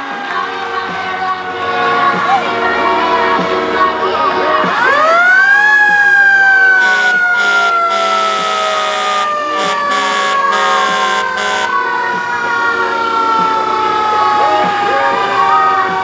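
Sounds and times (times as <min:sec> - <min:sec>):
mechanical siren winding down: 0:04.9 - 0:11.7
harsh on-off horn blasts: 0:06.8 - 0:11.8.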